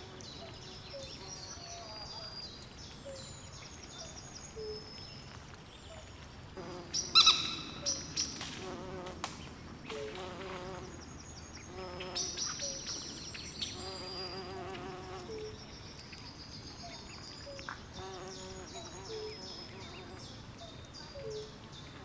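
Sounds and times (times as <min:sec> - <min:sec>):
insect calls: 0:06.7 - 0:08.4.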